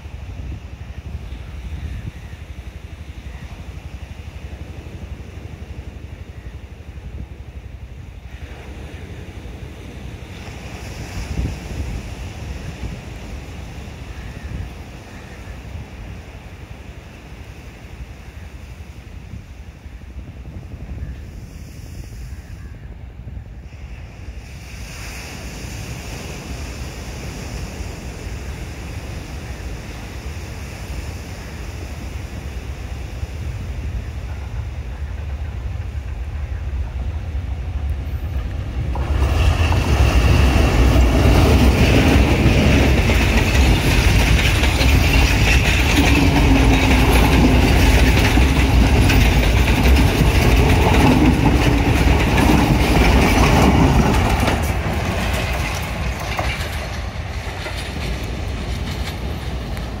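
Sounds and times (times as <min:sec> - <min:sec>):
diesel locomotive passing: 0:00.0 - 1:00.0
wheels clattering over rail joints: 0:33.8 - 1:00.0.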